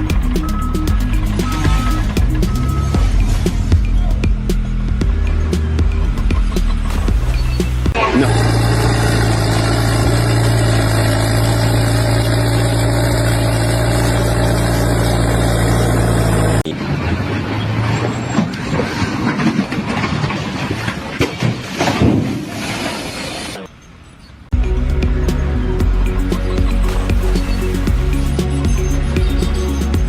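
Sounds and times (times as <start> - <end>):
engine running steadily: 0.0 - 16.8, 24.6 - 30.0.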